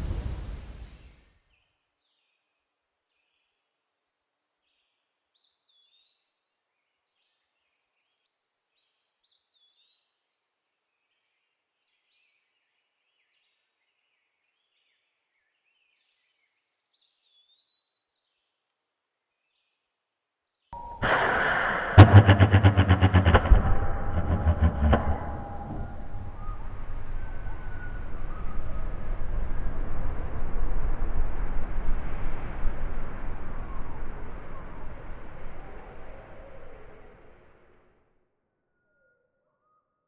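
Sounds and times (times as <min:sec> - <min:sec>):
sudden loud noise: 0:00.0 - 0:01.1, 0:20.8 - 0:37.8.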